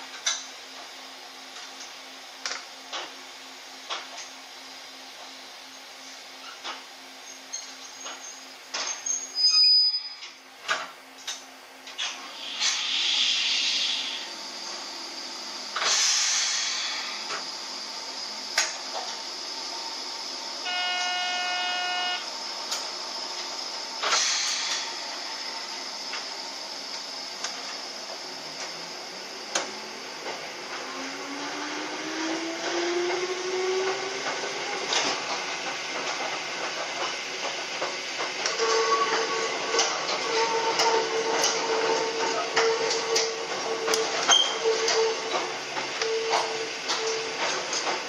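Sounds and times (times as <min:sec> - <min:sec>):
air hissing: 0:12.2 - 0:14.4, 0:15.8 - 0:17.4, 0:24.0 - 0:25.5
electric train motor whine: 0:16.7 - 0:48.0
train horn: 0:20.6 - 0:22.3, 0:38.5 - 0:39.5, 0:40.2 - 0:44.0.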